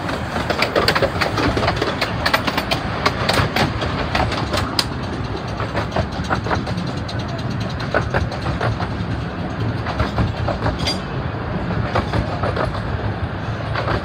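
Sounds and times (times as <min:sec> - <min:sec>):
train coaches passing alongside: 0:00.0 - 0:14.0
train wheels clattering on rails: 0:00.0 - 0:14.0.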